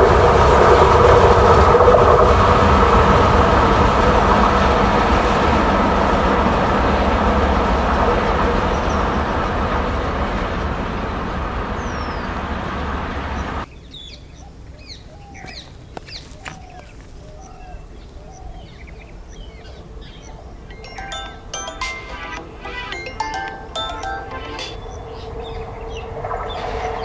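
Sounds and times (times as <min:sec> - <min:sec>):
distant approaching train rumble: 0:00.0 - 0:13.6
train coaches rumbling on track: 0:00.0 - 0:13.7
bright ringing tones: 0:20.7 - 0:25.2.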